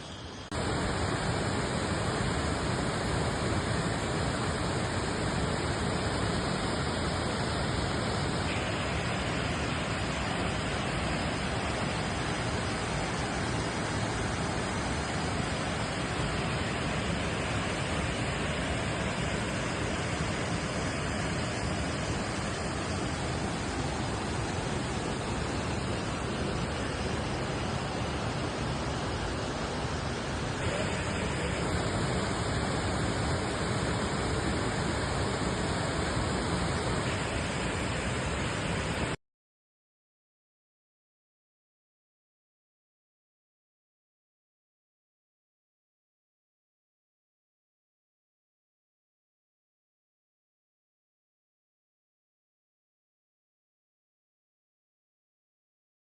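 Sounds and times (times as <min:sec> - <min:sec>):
waterfall rushing: 0:00.0 - 0:39.2.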